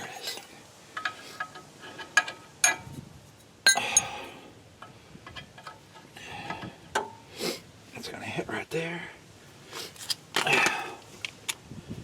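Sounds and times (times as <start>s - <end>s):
wrench clinking on metal bolt: 0.0s - 2.9s
light metal ticks and rattles: 4.8s - 7.2s.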